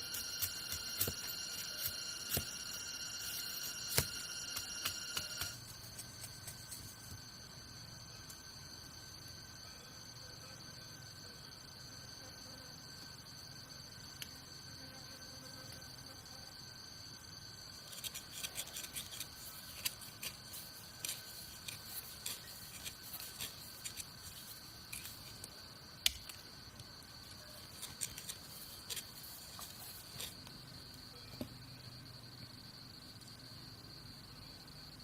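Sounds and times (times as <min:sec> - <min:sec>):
high-pitched insect drone: 0:00.0 - 0:35.0.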